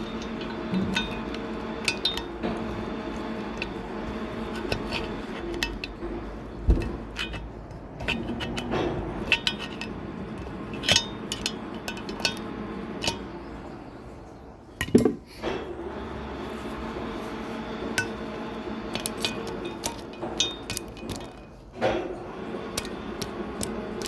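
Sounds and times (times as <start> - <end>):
metal tools and parts clinking: 0.0 - 14.1, 14.7 - 15.6, 17.9 - 24.0
steady low hum: 0.0 - 24.0.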